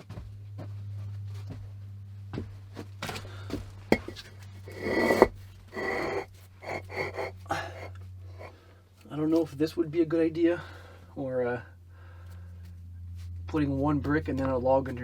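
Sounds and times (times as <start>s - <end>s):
steady low hum: 0.0s - 15.0s
hard objects knocking and scraping: 3.1s - 8.5s
rustling scrape: 3.9s - 8.5s.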